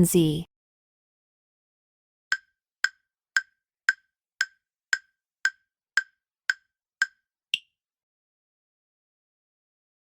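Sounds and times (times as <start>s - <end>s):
clock-like timer ticks: 2.3s - 7.7s.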